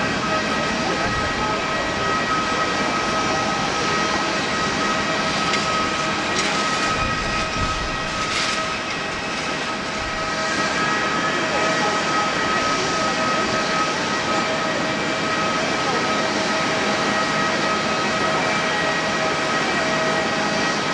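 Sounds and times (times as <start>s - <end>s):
jet engines running: 0.0s - 20.9s.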